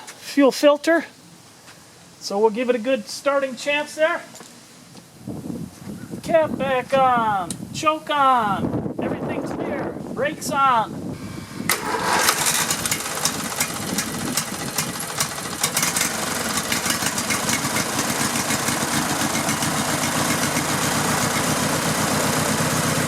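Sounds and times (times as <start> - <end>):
riding lawn mower engine running: 11.2 - 23.0.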